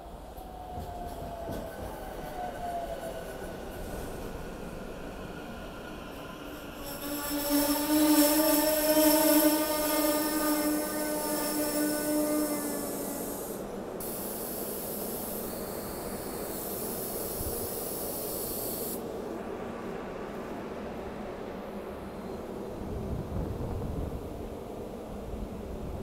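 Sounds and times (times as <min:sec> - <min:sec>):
electric train hum: 0:00.0 - 0:26.0
air hiss: 0:06.8 - 0:19.1.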